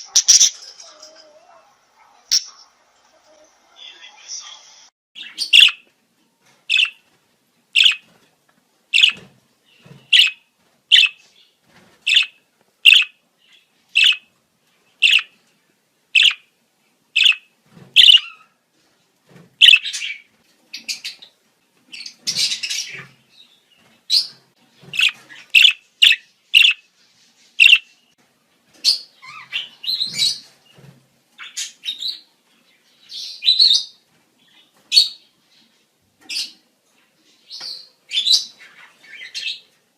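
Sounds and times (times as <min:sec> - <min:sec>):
budgerigars chirping and warbling: 0:00.0 - 0:01.0, 0:05.2 - 0:05.8, 0:06.7 - 0:07.0, 0:07.8 - 0:08.0, 0:09.0 - 0:09.2, 0:10.0 - 0:11.2, 0:12.1 - 0:14.3, 0:15.0 - 0:15.4, 0:16.2 - 0:16.5, 0:17.2 - 0:18.5, 0:19.6 - 0:21.3, 0:21.9 - 0:23.2, 0:24.1 - 0:26.8, 0:27.6 - 0:27.9, 0:28.8 - 0:30.5.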